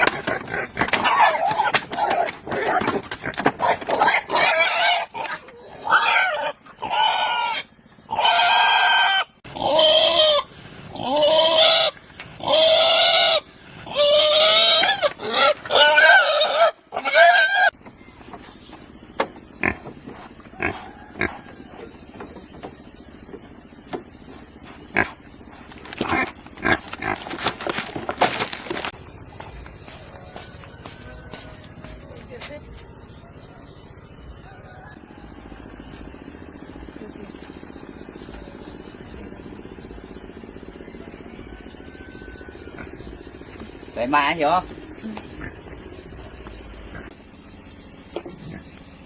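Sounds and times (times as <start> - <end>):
pig squealing: 0.0 - 2.9, 3.6 - 17.7.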